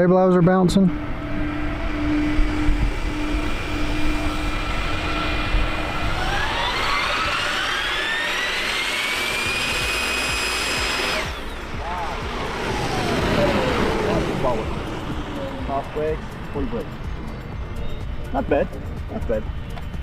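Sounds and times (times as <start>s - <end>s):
model jet turbine whine: 0.0s - 20.0s
wind rumble on microphone: 0.6s - 8.5s.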